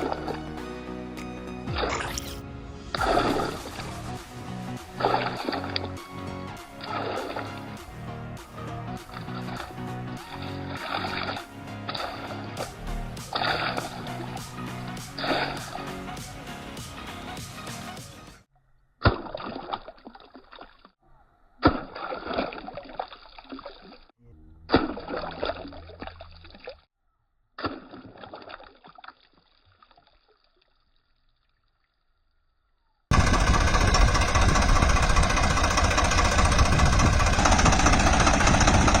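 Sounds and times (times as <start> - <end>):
water splashing and trickling: 0.0 - 0.6, 1.7 - 16.0, 18.6 - 21.0, 21.6 - 26.9, 27.6 - 33.1
loud steady sound: 2.7 - 5.5, 33.1 - 39.0.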